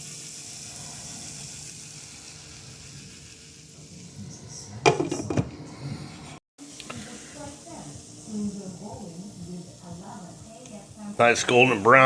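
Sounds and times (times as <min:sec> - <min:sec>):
patties sizzling in a skillet: 0:00.0 - 0:04.0, 0:06.6 - 0:12.0.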